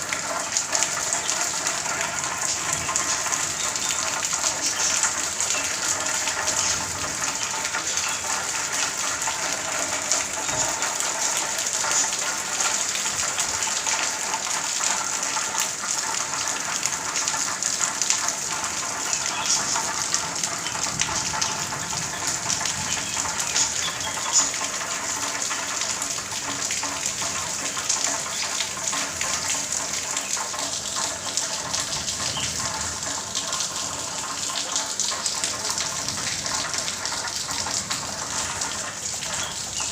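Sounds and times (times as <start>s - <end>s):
heavy rain pouring: 0.0s - 39.9s
water gushing: 0.0s - 39.9s.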